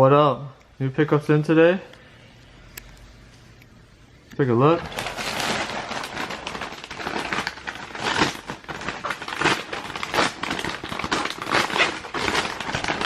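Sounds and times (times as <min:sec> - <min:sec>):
packaging crinkling and rustling: 0:04.7 - 0:13.0
packaging ripping and scrunching: 0:04.8 - 0:13.0.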